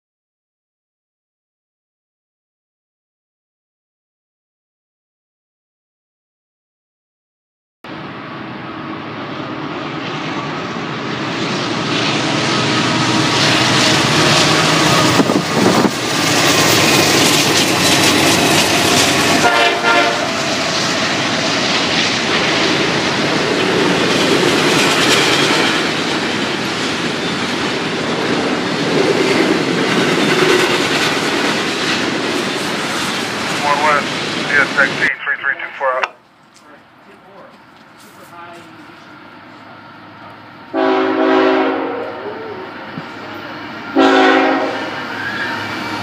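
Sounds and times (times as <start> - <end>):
diesel locomotive running: 7.9 - 46.0
locomotive horn: 19.3 - 20.5, 40.7 - 42.4, 43.9 - 45.6.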